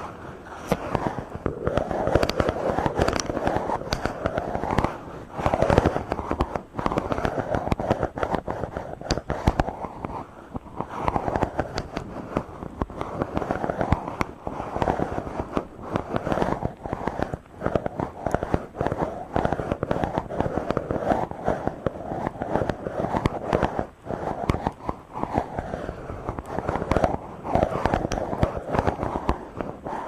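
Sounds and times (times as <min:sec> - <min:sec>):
rubbing on microphone: 0:00.0 - 0:30.0.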